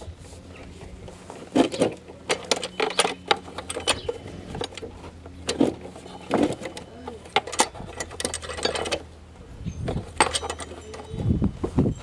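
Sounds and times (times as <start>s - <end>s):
steady low hum: 0.0s - 12.0s
metal tool clinking against bolts: 2.3s - 4.8s, 5.5s - 9.1s, 9.8s - 11.2s.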